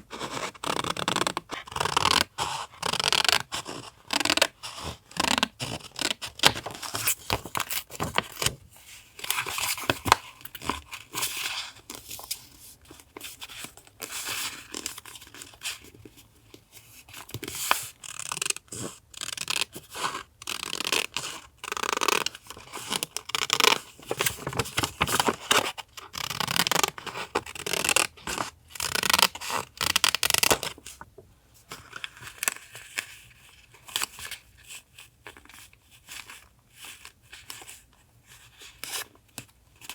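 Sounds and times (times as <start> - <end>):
paper rustling: 5.6 - 16.2, 22.2 - 26.0.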